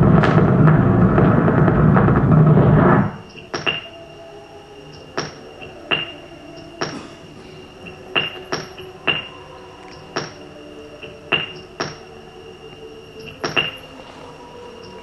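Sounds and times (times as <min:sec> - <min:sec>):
faint steady hum: 0:00.0 - 0:15.0
sharp knocks with high ringing: 0:05.2 - 0:06.2, 0:08.1 - 0:09.3, 0:11.3 - 0:12.0.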